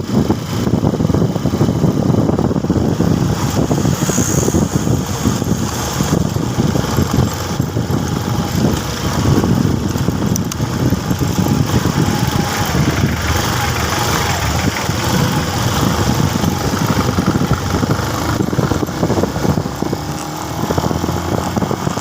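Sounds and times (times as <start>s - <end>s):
motorcycle engine rumbling: 0.0s - 22.0s.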